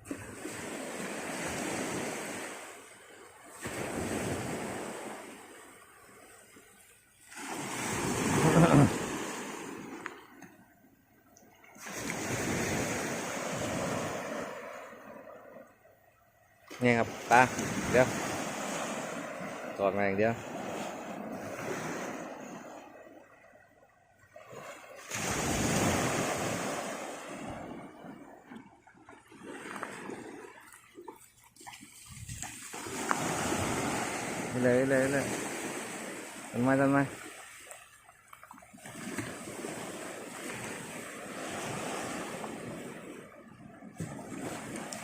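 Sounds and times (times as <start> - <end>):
surf washing on beach: 0.0 - 10.5, 11.7 - 15.7, 16.6 - 23.4, 24.3 - 45.0
wave breaking: 7.2 - 10.5, 11.8 - 15.7, 16.7 - 23.2, 24.3 - 37.8
wind buffeting microphone: 32.0 - 34.5.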